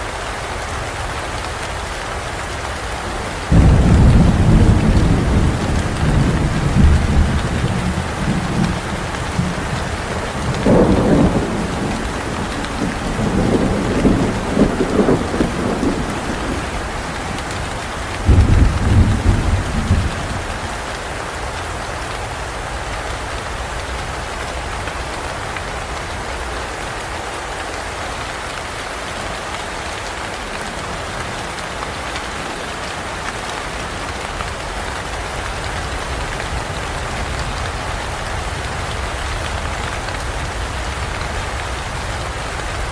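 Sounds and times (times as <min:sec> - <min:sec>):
steady rain: 0:00.0 - 0:42.9
thunder: 0:03.5 - 0:20.8.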